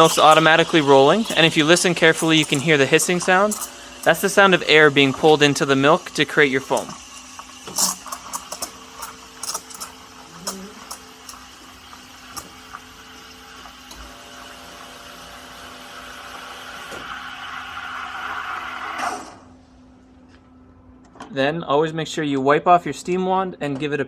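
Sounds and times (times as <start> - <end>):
steam wand hissing in milk: 0.0 - 13.7.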